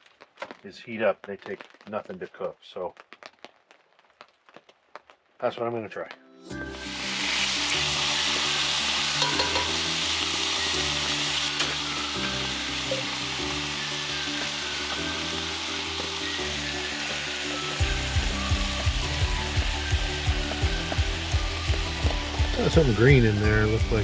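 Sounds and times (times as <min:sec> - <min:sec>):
background music: 0:05.8 - 0:24.0
chicken sizzling in hot oil: 0:06.5 - 0:24.0.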